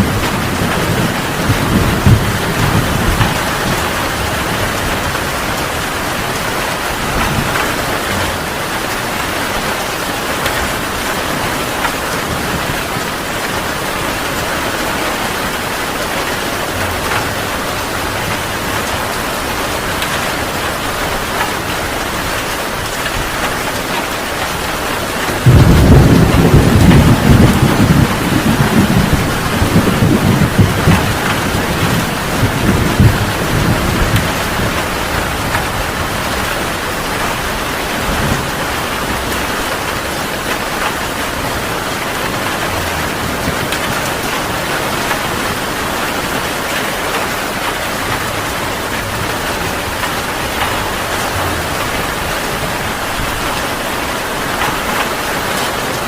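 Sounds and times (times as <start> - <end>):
loud roll of thunder: 0.0 - 8.3, 25.2 - 46.2
low thunder rumble: 0.0 - 55.5
heavy rain falling: 0.0 - 56.0.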